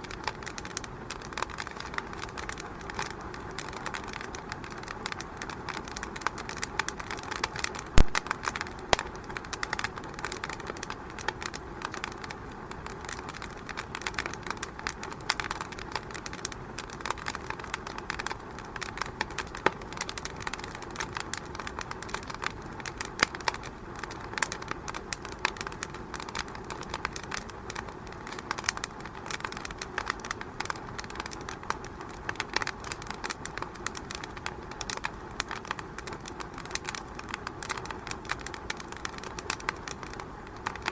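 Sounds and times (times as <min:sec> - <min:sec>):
wood fire crackling: 0:00.0 - 0:40.9
loud fire pop: 0:08.0 - 0:09.1.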